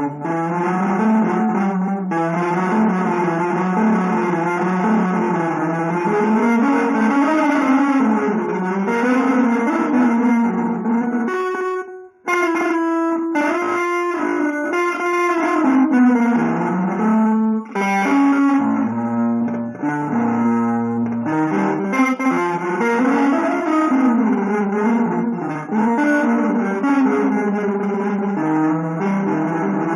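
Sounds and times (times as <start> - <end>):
guitar melody: 0.0 - 29.9.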